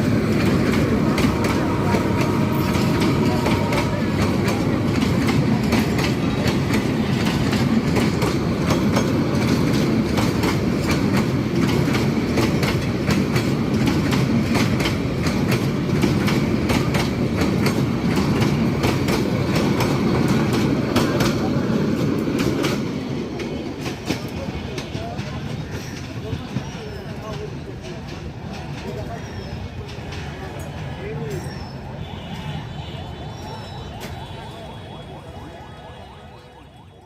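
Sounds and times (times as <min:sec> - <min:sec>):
train wheels clattering over rail joints: 0:00.0 - 0:31.6.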